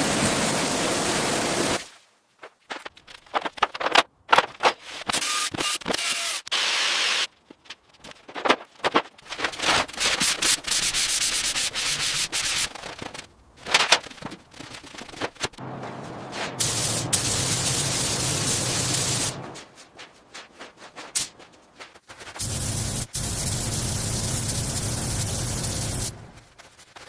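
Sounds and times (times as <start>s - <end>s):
abrasive sanding and rubbing: 9.9s - 13.2s.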